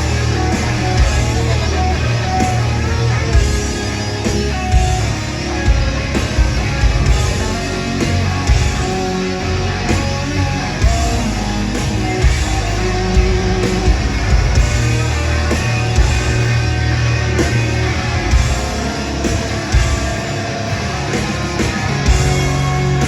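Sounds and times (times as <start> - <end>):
distorted electric guitars: 0.0 - 23.0
pounding drums: 0.0 - 23.0
rock band playing: 0.0 - 23.0.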